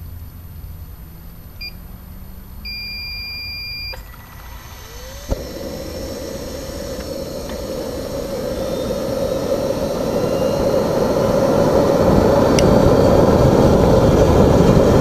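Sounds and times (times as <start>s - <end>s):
starter rising whine: 0.0s - 15.0s
control unit beeps: 2.6s - 4.1s
jet turbine running: 3.9s - 15.0s
click: 6.9s - 7.7s, 12.5s - 12.8s.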